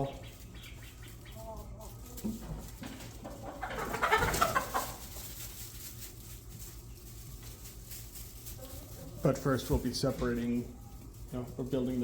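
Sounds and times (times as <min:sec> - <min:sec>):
low steady hum: 0:00.0 - 0:12.0
poultry calling: 0:03.2 - 0:05.0.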